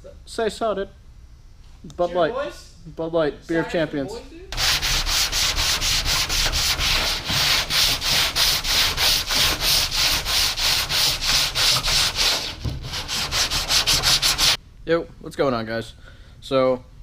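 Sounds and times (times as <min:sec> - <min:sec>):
sandpaper rasping on filler: 0:04.6 - 0:14.6.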